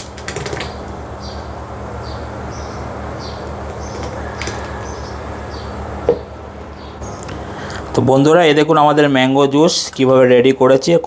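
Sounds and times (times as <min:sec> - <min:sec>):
steady low hum: 0:00.0 - 0:11.0
small bird chirping: 0:00.6 - 0:07.4.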